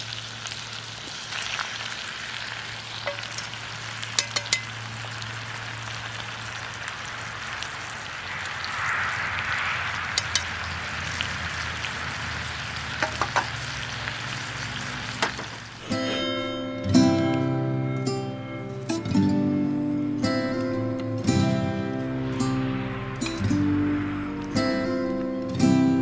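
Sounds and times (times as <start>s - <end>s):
meat sizzling over a fire: 0.0s - 8.8s, 10.6s - 16.3s.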